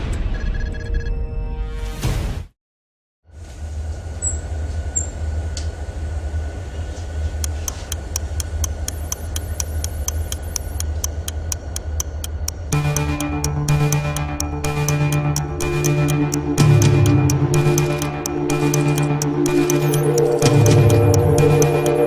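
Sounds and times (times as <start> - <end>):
sharp ticking: 7.4 - 22.0.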